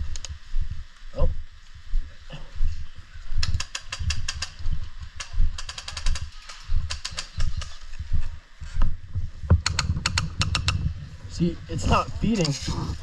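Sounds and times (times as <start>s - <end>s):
electric gun rapid clicks: 3.4s - 8.0s, 9.6s - 10.9s.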